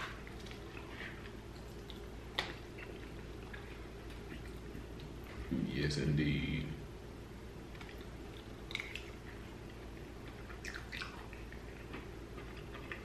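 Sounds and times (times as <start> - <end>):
person chewing food: 0.0 - 5.5, 7.7 - 13.0
steady low hum: 0.0 - 13.0
wet mouth clicks and smacks: 7.8 - 9.2.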